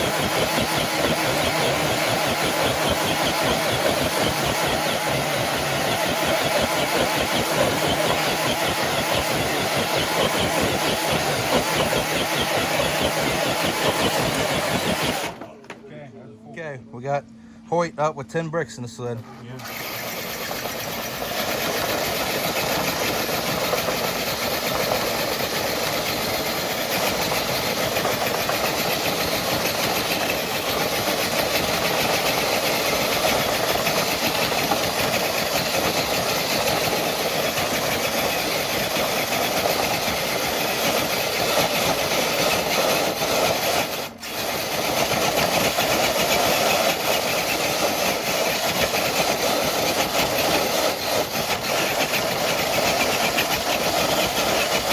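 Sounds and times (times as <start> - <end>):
electric motor and gears whining: 0.0 - 15.8, 19.2 - 54.9
sled dragging: 30.9 - 54.9.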